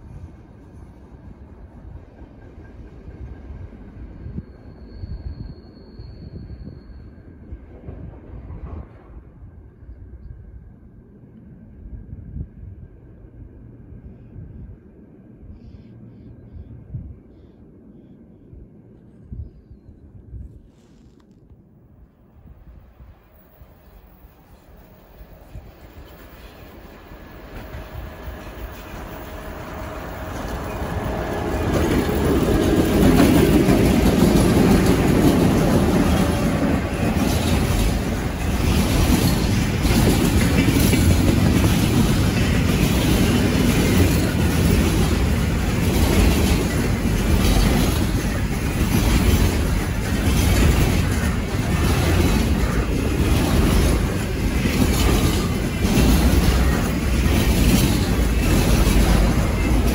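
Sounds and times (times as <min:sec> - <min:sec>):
rumble of rolling wagons: 0:23.3 - 0:59.9
wheels clicking over rail joints: 0:25.0 - 0:59.9.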